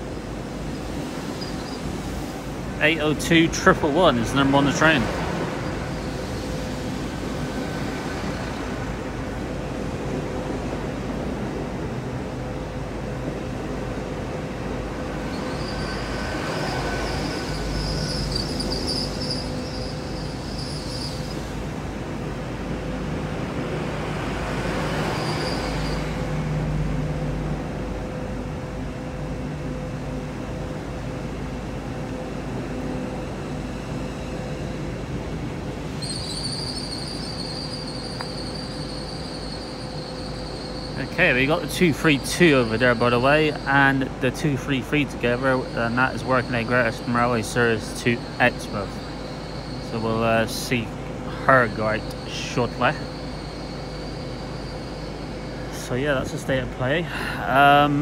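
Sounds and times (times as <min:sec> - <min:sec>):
train running hum: 0:00.0 - 0:58.0
high-pitched wheel squeal: 0:01.3 - 0:01.9, 0:05.6 - 0:08.4, 0:15.2 - 0:21.6, 0:24.7 - 0:26.5, 0:35.9 - 0:44.0, 0:45.4 - 0:50.7, 0:51.3 - 0:55.8.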